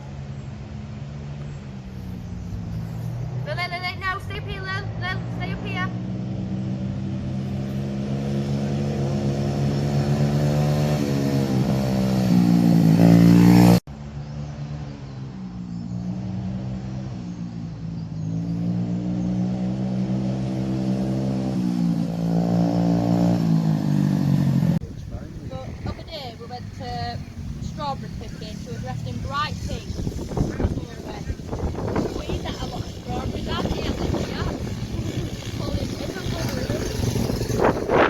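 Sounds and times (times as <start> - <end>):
dirtbike engine revving: 5.2 - 13.8, 18.3 - 38.0.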